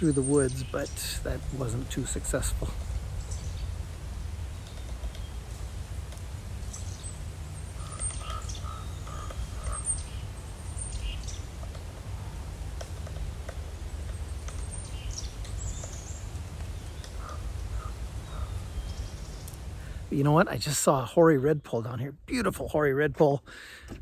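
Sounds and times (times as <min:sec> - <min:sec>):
steady low rumble: 0:00.0 - 0:21.5
lower repeated bird notes: 0:00.0 - 0:23.5
small birds chirping: 0:00.0 - 0:23.8.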